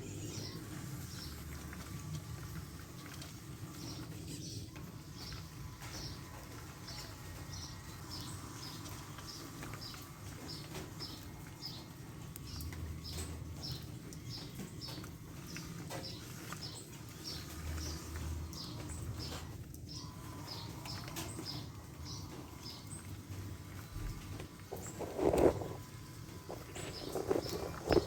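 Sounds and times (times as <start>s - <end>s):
bird chirping: 12.5s - 28.0s.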